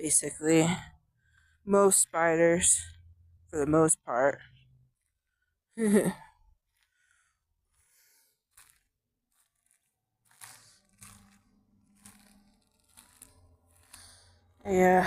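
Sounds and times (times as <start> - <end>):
crunching of dry forest litter: 7.7 - 14.6.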